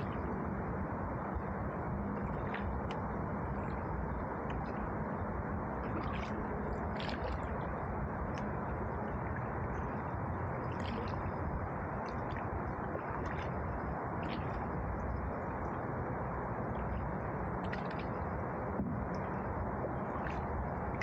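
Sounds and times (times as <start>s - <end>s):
wind: 0.0s - 21.0s
rushing water: 1.3s - 21.0s
paddle splashing in water: 5.8s - 7.6s, 10.6s - 14.7s, 17.6s - 18.2s.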